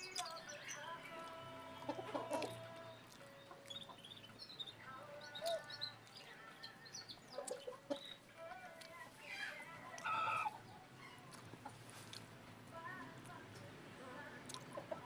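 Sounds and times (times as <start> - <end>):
high chirping calls: 0.0 - 8.5
chickens clucking: 0.0 - 12.6, 14.5 - 15.0.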